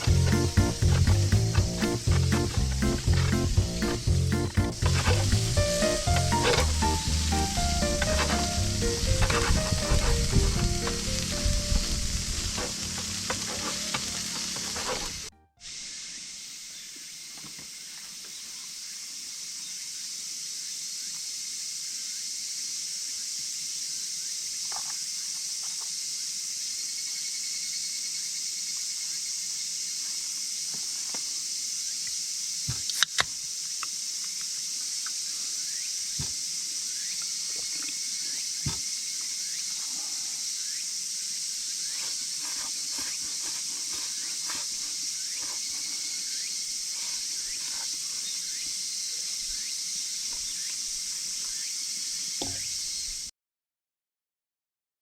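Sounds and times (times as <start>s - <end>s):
food sizzling in a pan: 3.5s - 17.8s
spoon scraping a pan: 4.7s - 11.3s, 12.3s - 15.3s.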